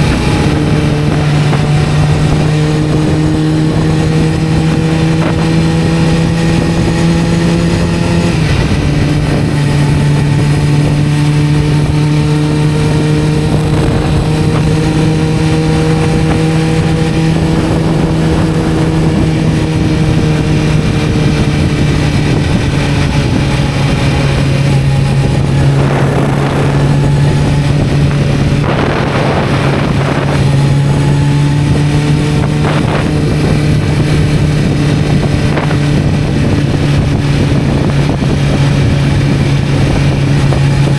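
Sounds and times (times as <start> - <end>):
motorcycle engine cruising: 0.0 - 40.9
rushes of noise: 0.0 - 40.9.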